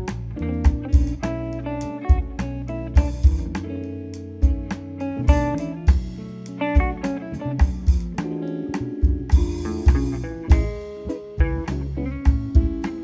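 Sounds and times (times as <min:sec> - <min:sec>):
live instrumental band: 0:00.0 - 0:13.0
low drum hits: 0:09.0 - 0:13.0.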